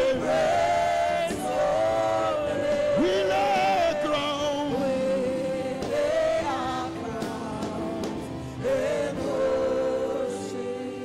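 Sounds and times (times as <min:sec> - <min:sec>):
congregation singing: 0:00.0 - 0:11.0
keyboard accompaniment: 0:00.0 - 0:11.0
lead singer: 0:00.0 - 0:11.0.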